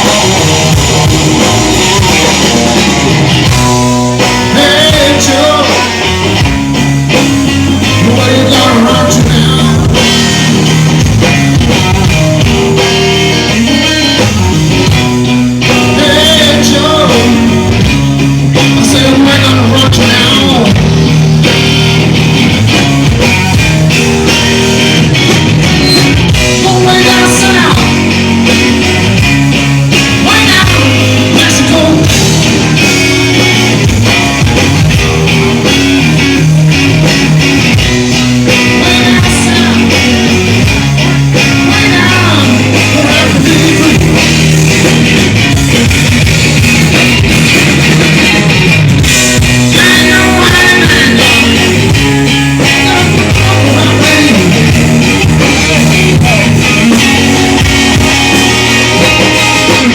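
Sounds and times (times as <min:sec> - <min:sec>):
blues-rock band playing: 0:00.0 - 0:59.9
electric guitar bending notes: 0:00.0 - 0:59.9.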